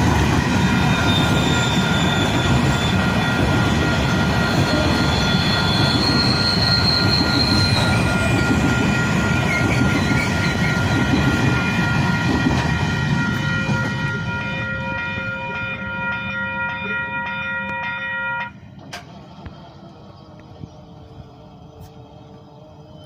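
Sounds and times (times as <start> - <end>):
wheels squealing: 0.4 - 12.2.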